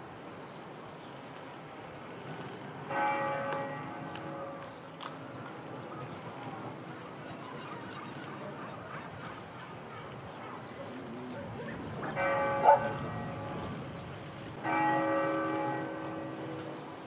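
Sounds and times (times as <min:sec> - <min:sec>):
church bell ringing: 0:02.9 - 0:04.8, 0:12.0 - 0:13.8, 0:14.6 - 0:17.0.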